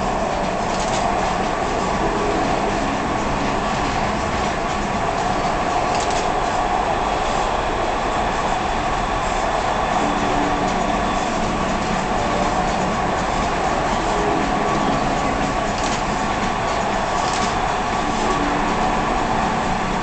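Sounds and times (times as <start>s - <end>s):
train running: 0.0s - 20.0s.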